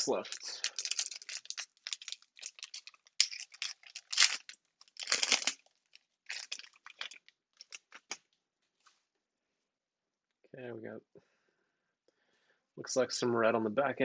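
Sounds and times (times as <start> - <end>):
foil wrapper tearing and crinkling: 0.2 - 8.2.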